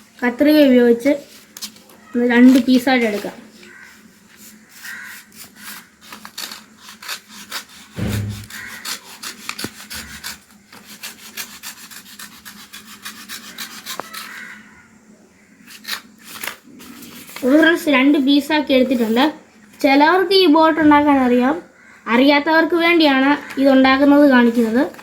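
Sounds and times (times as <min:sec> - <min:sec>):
scissors snipping paper: 0:05.6 - 0:07.9
dull thump: 0:08.0 - 0:08.7
paper rustling: 0:15.8 - 0:17.8, 0:23.4 - 0:25.0.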